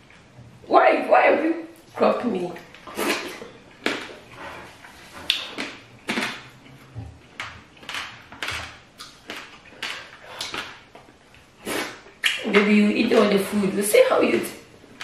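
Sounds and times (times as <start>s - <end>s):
wet chewing and lip smacks: 2.6s - 12.6s.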